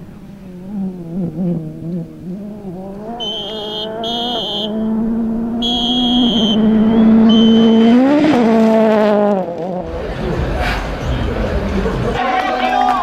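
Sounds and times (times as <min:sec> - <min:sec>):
high-pitched whine: 0:00.0 - 0:08.1
rally car engine at high revs: 0:00.0 - 0:11.3.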